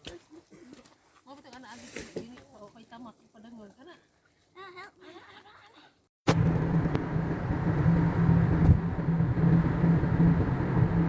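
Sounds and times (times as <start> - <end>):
car cabin road and engine noise: 6.3 - 11.0.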